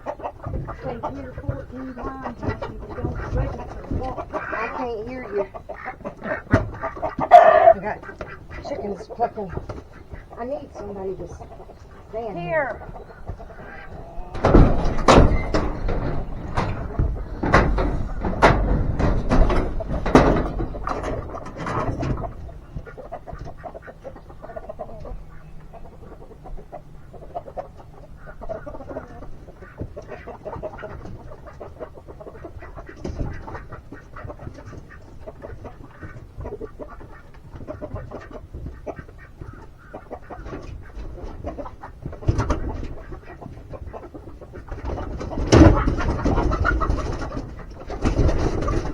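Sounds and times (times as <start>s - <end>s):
chickens clucking: 0.0s - 48.9s
scuffle of knocks and rustling: 11.9s - 23.6s, 44.7s - 48.9s.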